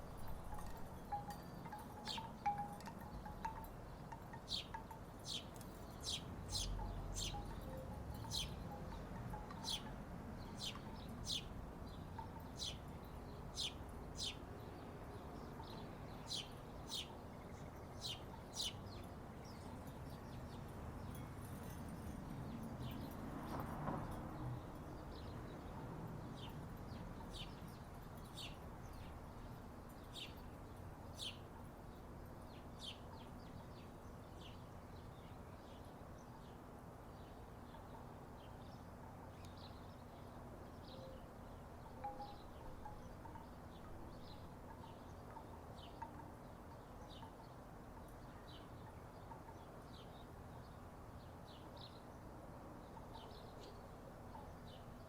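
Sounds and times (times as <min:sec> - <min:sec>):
wooden wind chimes knocking: 0:00.2 - 0:11.2, 0:41.8 - 0:46.4.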